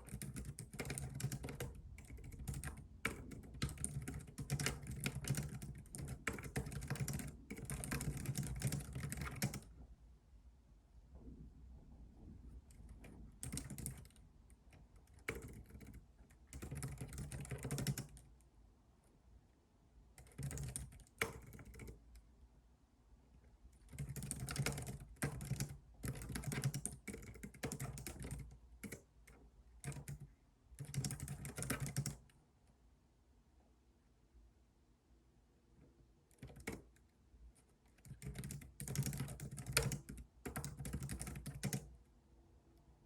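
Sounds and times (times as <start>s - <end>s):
typing on computer keyboard: 0.0s - 9.7s, 12.7s - 18.3s, 20.2s - 22.2s, 23.8s - 32.4s, 36.3s - 37.1s, 37.8s - 41.9s.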